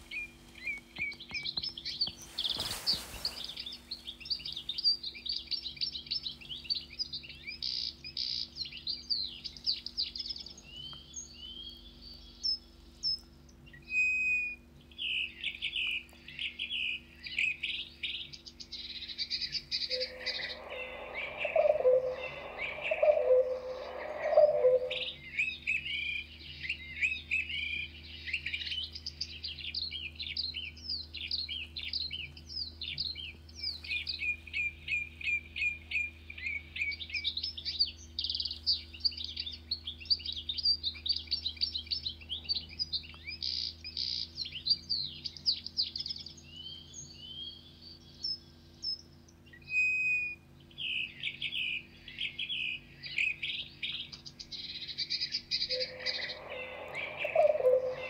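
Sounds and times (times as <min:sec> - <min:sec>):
birds chirping and twittering: 0:00.0 - 0:58.0
bird whistle: 0:19.9 - 0:25.2, 0:55.6 - 0:58.0.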